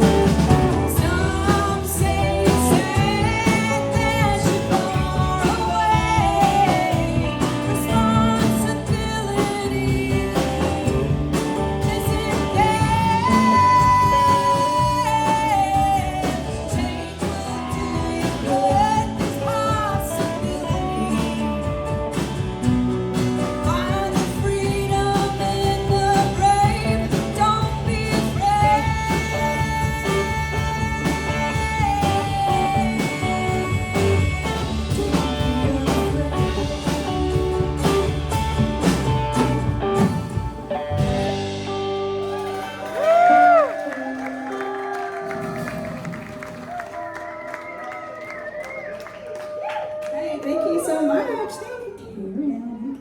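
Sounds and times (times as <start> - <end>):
person singing: 0.0 - 22.4, 23.4 - 40.1
live band playing country-rock: 0.0 - 50.0.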